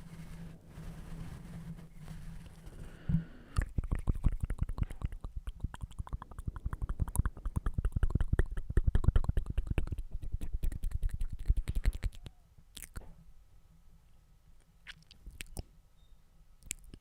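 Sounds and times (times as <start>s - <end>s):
wet mouth clicks and smacks: 3.6s - 13.1s, 14.8s - 15.7s, 16.6s - 17.0s.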